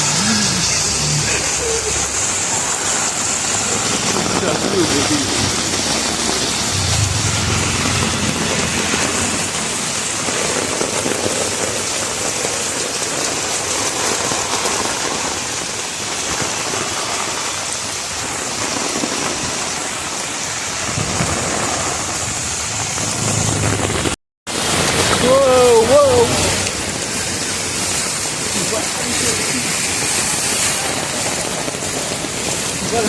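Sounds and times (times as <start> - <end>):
heavy rain: 0.0 - 33.0
low rumble: 6.5 - 9.9.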